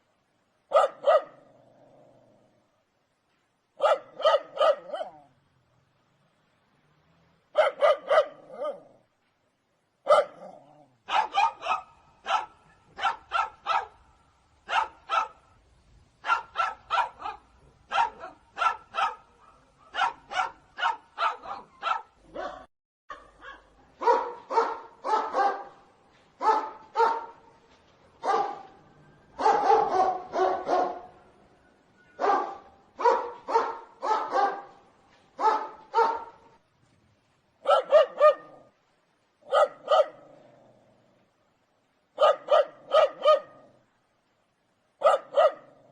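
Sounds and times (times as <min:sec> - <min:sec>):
dog barking: 0:00.7 - 0:01.4, 0:03.8 - 0:05.3, 0:07.5 - 0:08.9, 0:10.0 - 0:14.0, 0:14.6 - 0:15.5, 0:16.2 - 0:25.8, 0:26.4 - 0:27.4, 0:28.2 - 0:28.8, 0:29.4 - 0:31.2, 0:32.2 - 0:34.8, 0:35.4 - 0:36.6, 0:37.6 - 0:38.7, 0:39.4 - 0:40.3, 0:42.2 - 0:43.7, 0:45.0 - 0:45.8.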